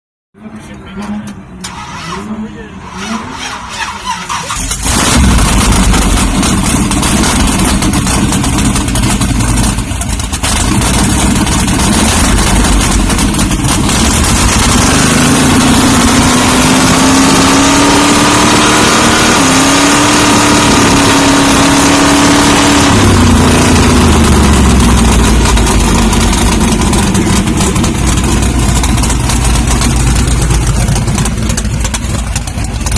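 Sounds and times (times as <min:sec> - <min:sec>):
truck engine idling: 0:00.5 - 0:14.9, 0:23.1 - 0:32.9.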